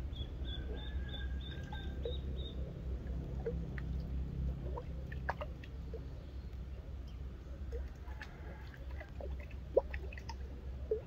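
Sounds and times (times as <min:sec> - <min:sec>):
small bird peeping: 0:00.0 - 0:02.6
low rumble of wind: 0:00.0 - 0:11.0.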